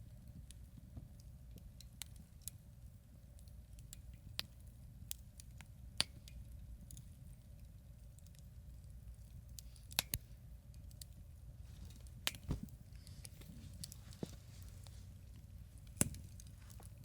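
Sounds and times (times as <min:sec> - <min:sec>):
low steady rumble: 0:00.0 - 0:17.0
campfire crackling and popping: 0:03.4 - 0:11.2, 0:11.8 - 0:17.0.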